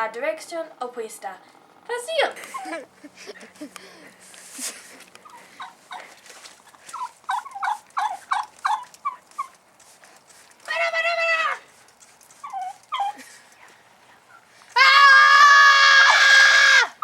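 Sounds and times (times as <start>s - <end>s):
poultry clucking: 5.2s - 6.2s, 6.8s - 9.6s
long poultry call: 6.9s - 9.6s, 10.7s - 11.7s, 14.3s - 17.0s.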